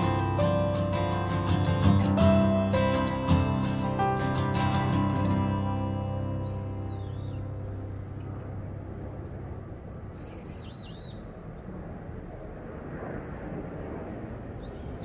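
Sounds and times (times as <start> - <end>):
birds chirping: 0.0 - 8.1, 10.1 - 11.4
steady background noise: 0.0 - 15.0.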